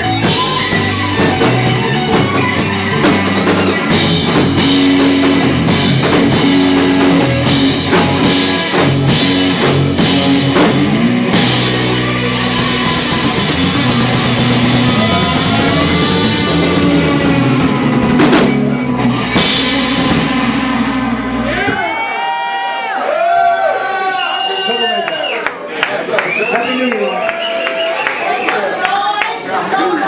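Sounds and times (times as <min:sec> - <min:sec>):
electric guitar: 0:00.0 - 0:22.2
drum kit: 0:00.0 - 0:22.3
bass: 0:00.0 - 0:25.4.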